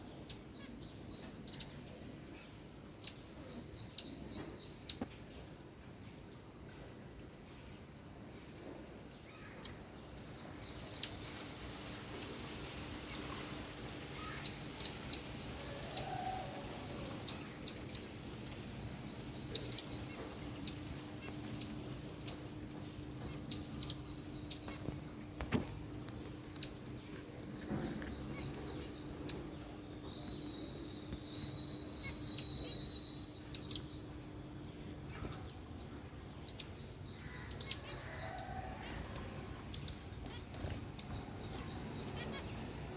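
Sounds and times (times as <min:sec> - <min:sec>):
small birds chirping and trilling: 0:00.0 - 0:42.9
steady low hum: 0:10.0 - 0:42.9.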